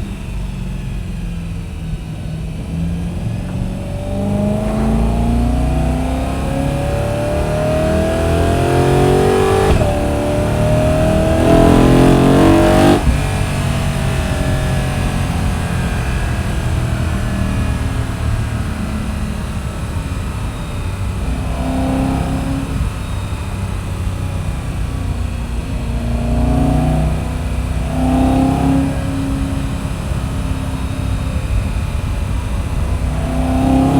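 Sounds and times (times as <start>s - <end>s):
car engine accelerating hard: 0.0s - 33.9s.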